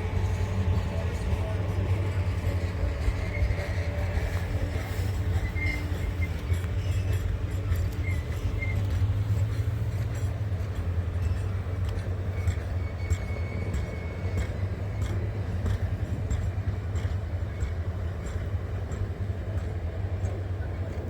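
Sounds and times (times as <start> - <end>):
faint high squeals: 0.0 - 9.5, 11.2 - 15.4
vehicle engine rumbling: 0.0 - 21.0.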